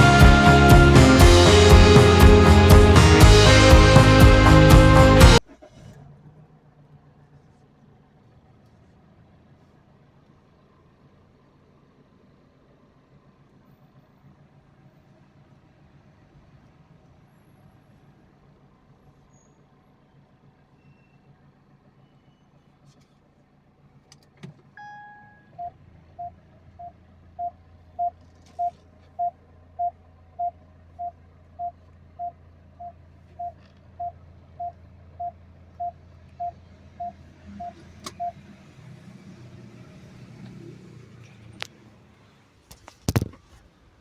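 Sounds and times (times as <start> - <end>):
click: 24.1 - 25.0
short single tone: 24.8 - 25.8
car warning chime beeping: 24.8 - 38.4.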